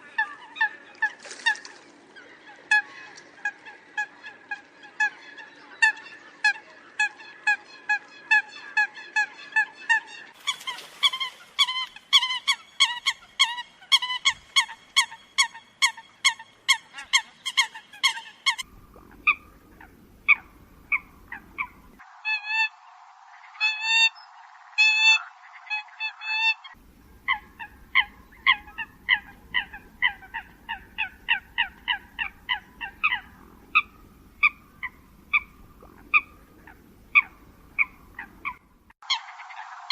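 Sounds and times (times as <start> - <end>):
coot calls: 8.3 - 22.7, 24.8 - 39.9.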